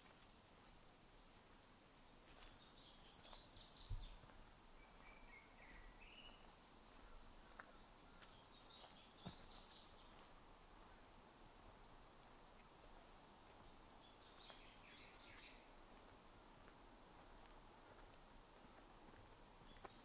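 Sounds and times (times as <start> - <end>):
songbird twittering: 4.8 - 10.2, 12.6 - 15.8.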